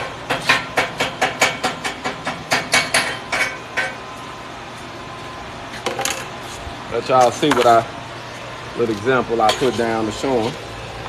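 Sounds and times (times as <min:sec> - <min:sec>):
steady low hum: 0:00.0 - 0:11.0
chipping hammer striking metal: 0:00.3 - 0:04.0.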